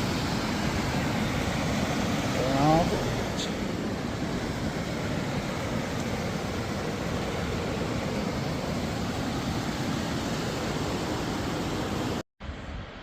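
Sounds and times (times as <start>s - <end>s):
stream water rushing: 0.0s - 12.8s.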